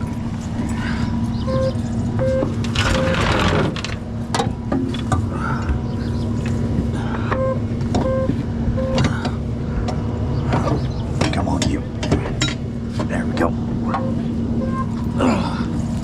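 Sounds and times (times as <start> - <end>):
vehicle engine running: 0.0 - 16.0
short beeps: 1.4 - 3.2, 7.4 - 9.0.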